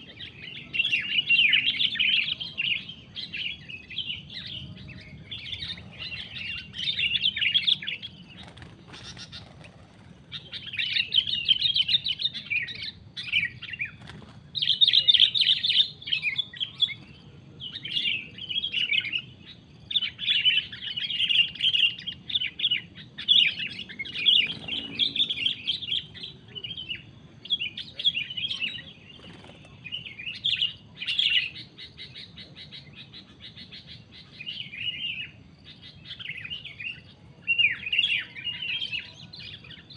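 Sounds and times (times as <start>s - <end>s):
bird scratchy chatter calls: 4.3s - 18.1s, 20.6s - 35.4s.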